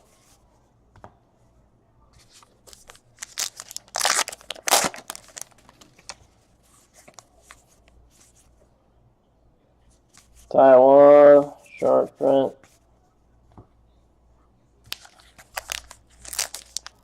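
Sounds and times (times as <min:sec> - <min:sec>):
wrapper tearing and crinkling: 0:03.2 - 0:06.2, 0:14.9 - 0:17.0.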